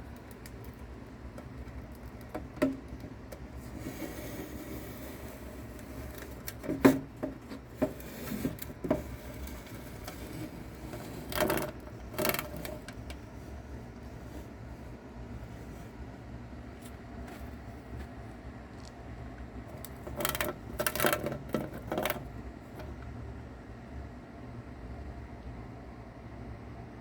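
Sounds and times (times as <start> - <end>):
scraping rustles: 0.0 - 18.3
low steady hum: 0.0 - 27.0.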